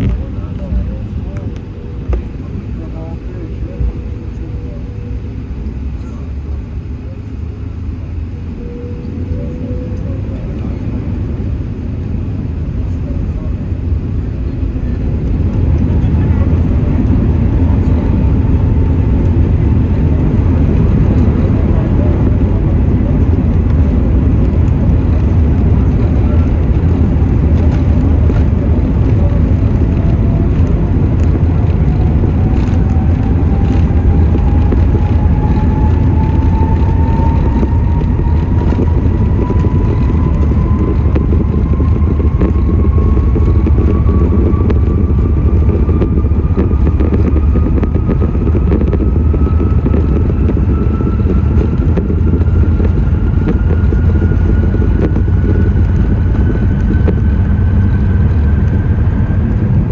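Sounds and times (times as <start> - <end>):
engine and airframe rumble: 0.0 - 59.9
thin whine rising in pitch: 25.0 - 59.9.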